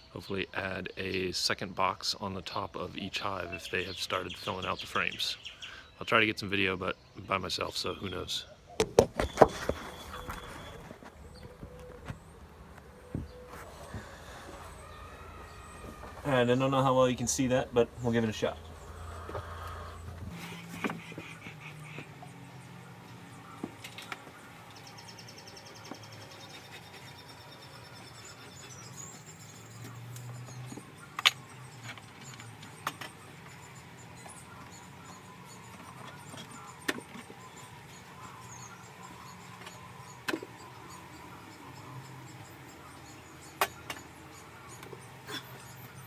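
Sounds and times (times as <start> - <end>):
bees humming: 2.9 - 46.0
hive tool prying wooden frames: 18.7 - 46.0.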